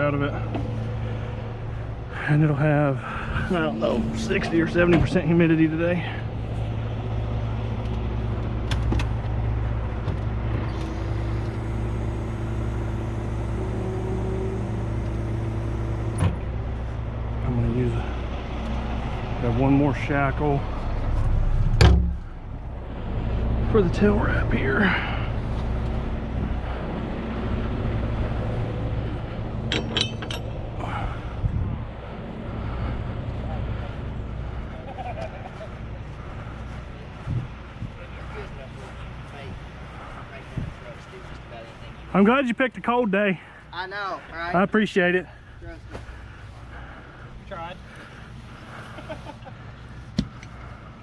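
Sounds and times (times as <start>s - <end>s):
diesel truck engine idling: 0.0s - 51.0s
metallic clinks of shackle hardware: 29.7s - 30.6s.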